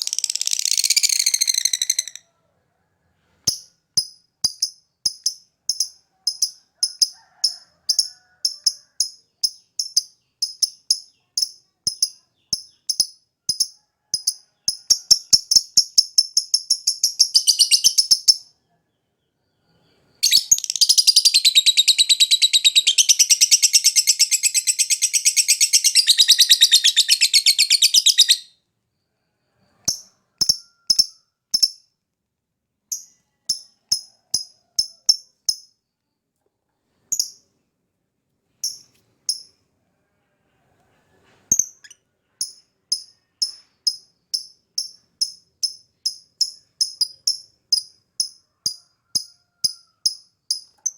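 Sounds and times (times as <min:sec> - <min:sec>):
lovebird chirping and chattering: 0:00.0 - 0:02.3, 0:03.4 - 0:07.1, 0:07.9 - 0:18.6, 0:20.2 - 0:28.5, 0:29.8 - 0:31.8, 0:32.9 - 0:35.7, 0:37.1 - 0:37.4, 0:38.6 - 0:39.5, 0:41.5 - 0:50.9.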